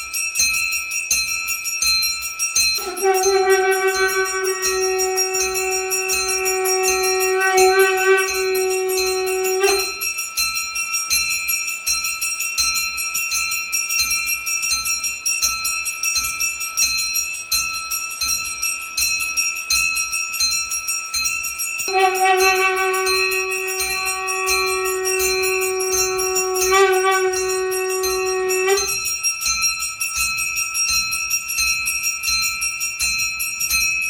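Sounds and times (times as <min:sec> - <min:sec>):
bells ringing rapidly: 0:00.0 - 0:34.0
long held horn tone: 0:02.8 - 0:10.0, 0:21.9 - 0:29.1.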